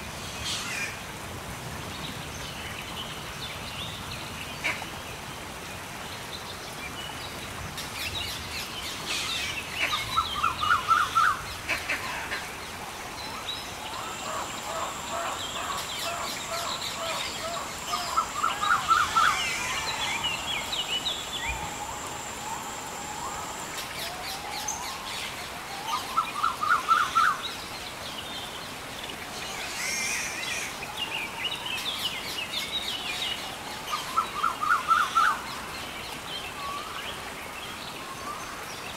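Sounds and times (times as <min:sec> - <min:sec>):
background hiss: 0:00.0 - 0:38.9
wild birds calling and chirping: 0:08.3 - 0:37.0.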